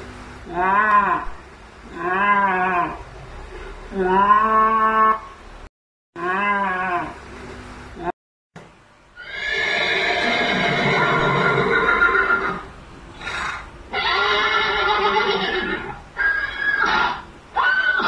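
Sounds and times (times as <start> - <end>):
horse whinnying: 9.2 - 18.0.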